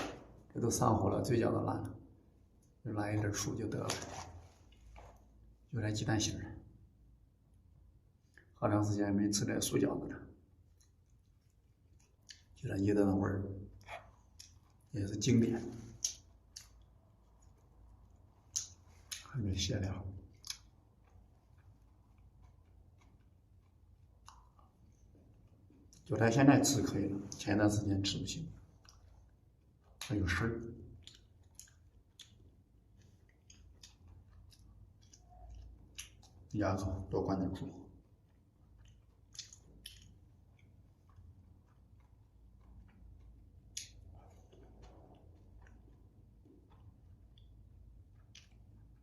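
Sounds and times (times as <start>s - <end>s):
faint chewing: 10.3s - 12.6s, 13.6s - 27.5s, 28.1s - 49.0s
small mouth clicks: 10.5s - 12.6s, 13.6s - 14.9s, 15.6s - 19.3s, 20.2s - 26.1s, 30.7s - 36.5s, 37.9s - 49.0s.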